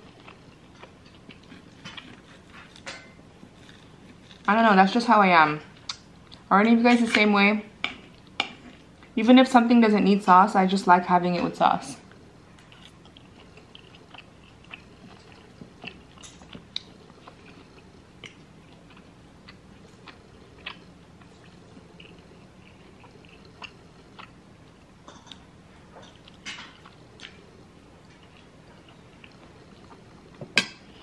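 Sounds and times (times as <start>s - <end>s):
chewing steak: 0.0s - 4.6s, 12.1s - 30.4s.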